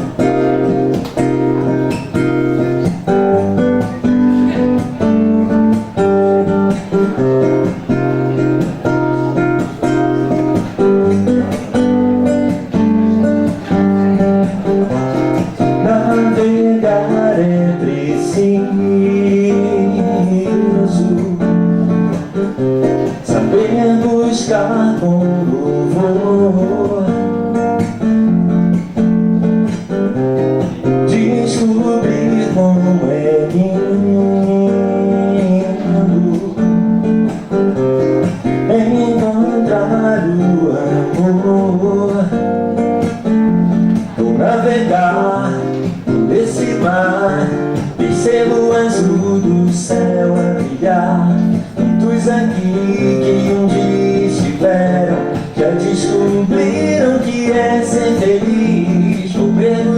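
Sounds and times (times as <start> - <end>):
live guitar instrumental: 0.0 - 59.9.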